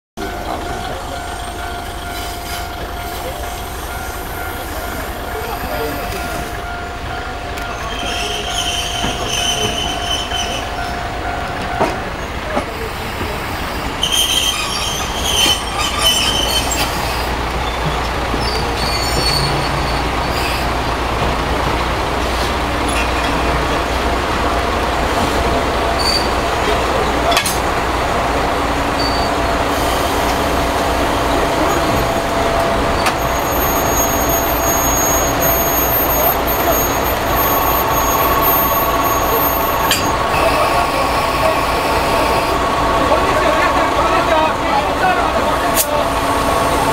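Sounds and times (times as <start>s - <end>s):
diesel engine rumbling: 0.2s - 46.9s
wheels squealing: 1.1s - 21.0s, 25.1s - 26.8s, 28.9s - 44.4s.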